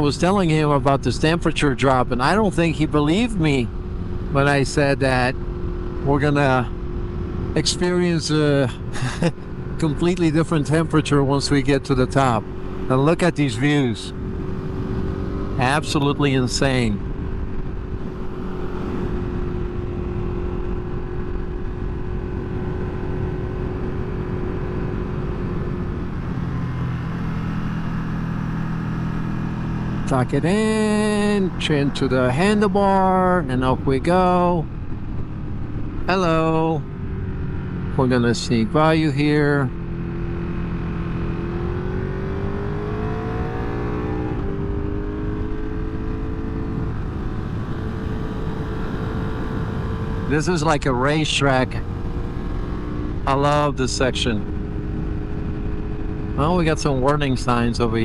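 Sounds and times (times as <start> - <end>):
motorcycle engine running: 0.0 - 58.0
wind and road noise: 0.0 - 58.0
wind rush: 14.0 - 30.0.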